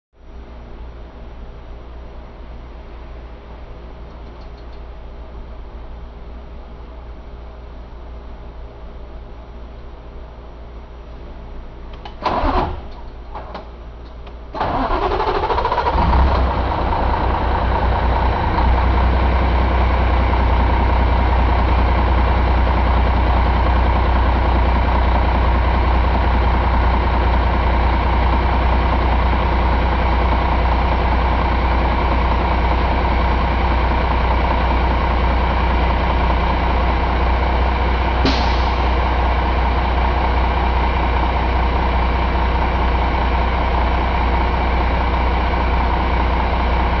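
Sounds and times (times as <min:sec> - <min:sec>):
diesel engine cranking and idling: 0:11.9 - 0:47.0
brief sharp noise: 0:38.2 - 0:38.8.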